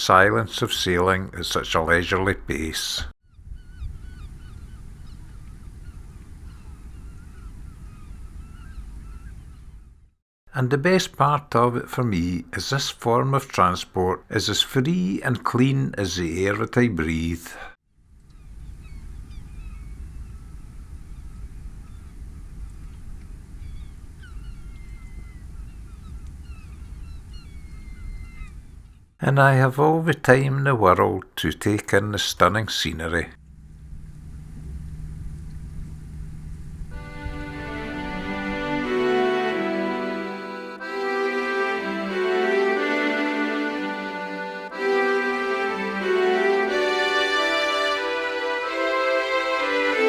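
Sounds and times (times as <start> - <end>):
low steady rumble: 33.4 - 37.6.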